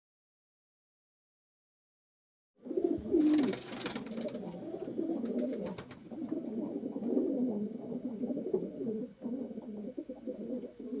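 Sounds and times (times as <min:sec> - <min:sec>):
pigeons cooing: 0:02.6 - 0:11.0.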